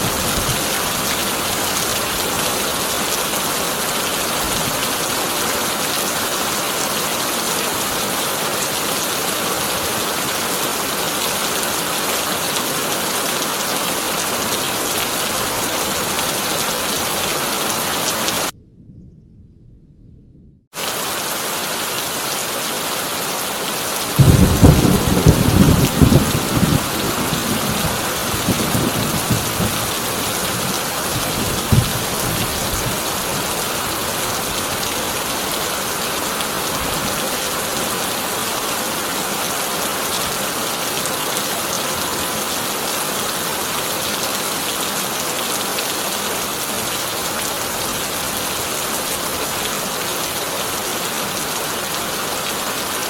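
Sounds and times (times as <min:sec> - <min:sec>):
heavy rain on a tin roof: 0:00.0 - 0:18.6, 0:20.8 - 0:53.0
thunder rumbling: 0:18.3 - 0:20.7, 0:24.2 - 0:35.5
sharp thunder crack: 0:24.2 - 0:29.8.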